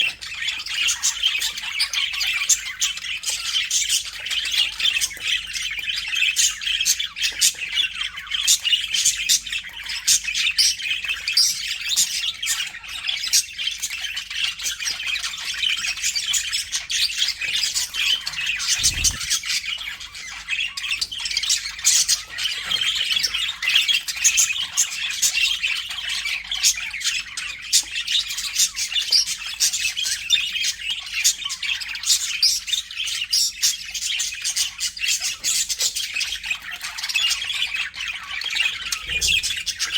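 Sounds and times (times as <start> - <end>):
budgerigars chattering: 15.8 - 33.8.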